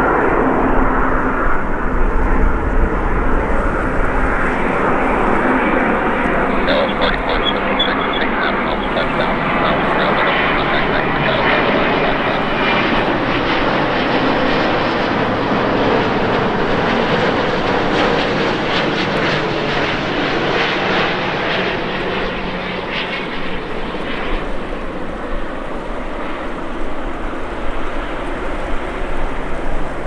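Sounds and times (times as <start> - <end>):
jet airliner passing close: 0.0 - 30.0.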